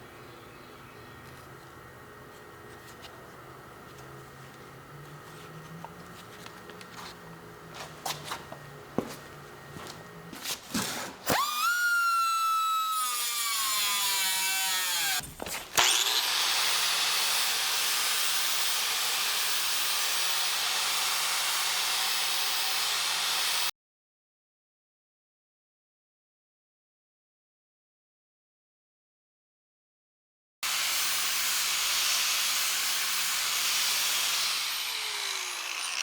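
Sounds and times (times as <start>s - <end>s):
power tool whining and hissing: 11.0s - 23.7s, 30.6s - 36.0s.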